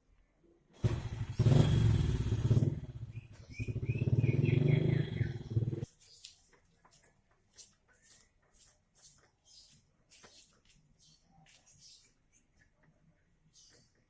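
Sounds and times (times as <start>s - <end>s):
small engine running loudly: 0.8s - 5.8s.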